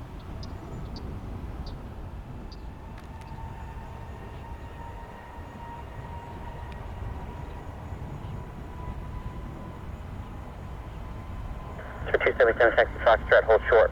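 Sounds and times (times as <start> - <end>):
distant jet engines rumbling: 0.0 - 13.9.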